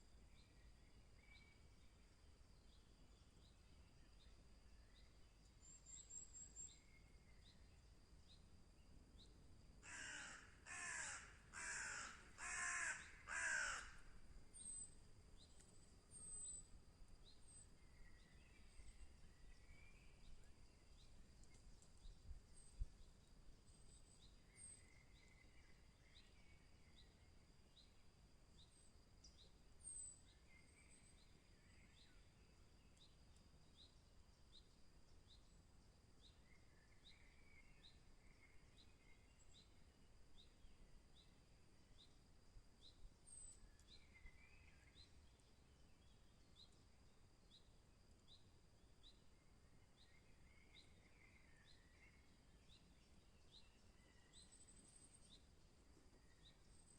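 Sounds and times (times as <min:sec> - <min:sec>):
faint steady high whine: 0:00.0 - 0:56.9
harsh bird calls: 0:09.9 - 0:14.0.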